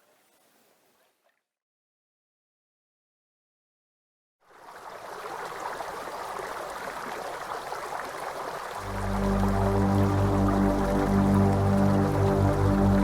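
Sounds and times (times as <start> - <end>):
stream running water: 4.4 - 13.0
music with low notes: 8.8 - 13.0.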